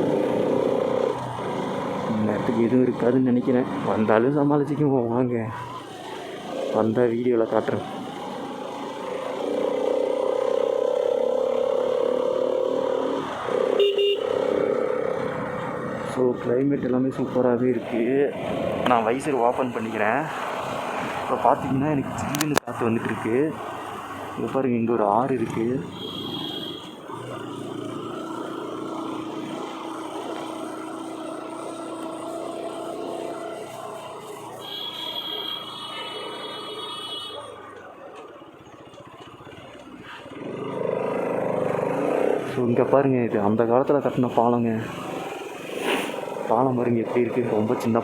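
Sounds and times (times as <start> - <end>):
motorcycle engine riding uphill: 0.0 - 34.6, 37.4 - 48.0.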